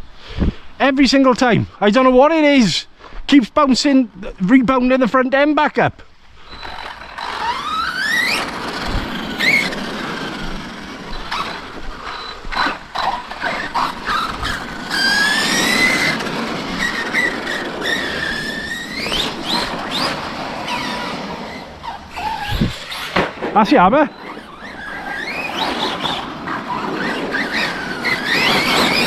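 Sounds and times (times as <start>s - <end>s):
tyres on dirt: 6.1s - 29.0s
toy truck electric motors whining: 6.4s - 29.0s.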